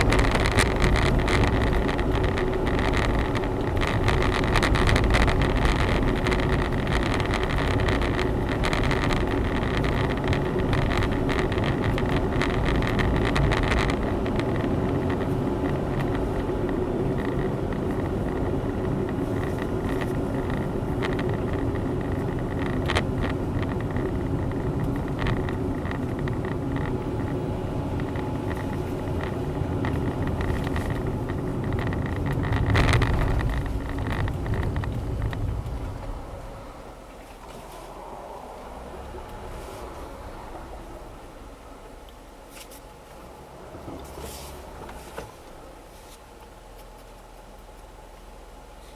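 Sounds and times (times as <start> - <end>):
car engine and road noise: 0.0 - 48.9.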